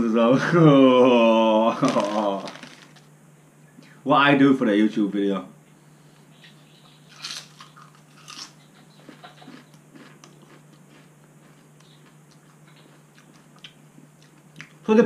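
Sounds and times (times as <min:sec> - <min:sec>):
faint steady hum: 0:00.0 - 0:15.0
crunching potato crisp: 0:07.1 - 0:14.8.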